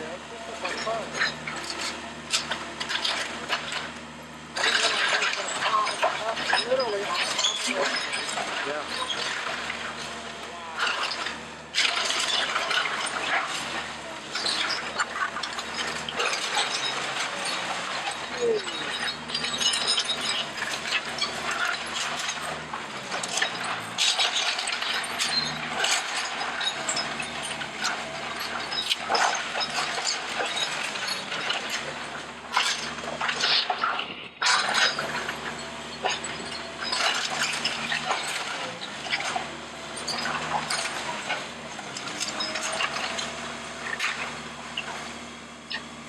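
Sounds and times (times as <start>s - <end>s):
debris cracking and crunching: 0.0s - 46.0s
machine engine running: 0.0s - 46.0s.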